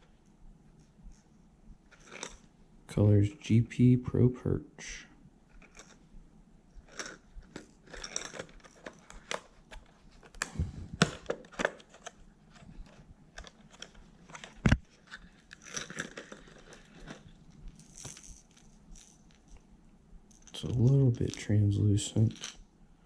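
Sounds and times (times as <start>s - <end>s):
plastic packaging crinkling: 6.9s - 19.6s.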